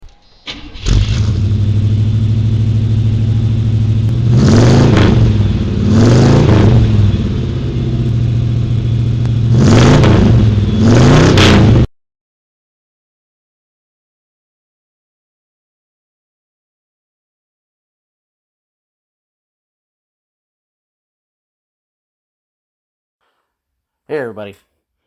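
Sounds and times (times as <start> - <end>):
car engine starting and revving: 0.1 - 11.9.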